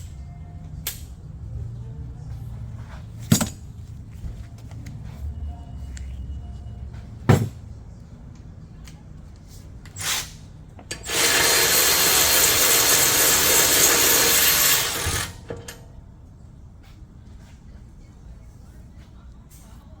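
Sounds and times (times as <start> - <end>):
power tool running: 10.9 - 15.8.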